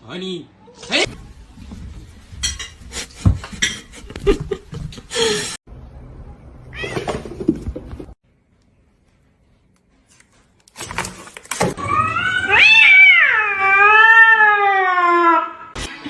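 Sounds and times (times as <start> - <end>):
cat yowling: 11.8 - 15.8.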